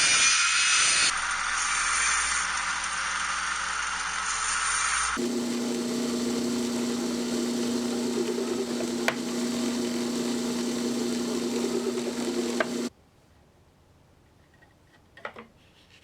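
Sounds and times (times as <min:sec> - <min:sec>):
power tool motor running: 0:05.2 - 0:12.9.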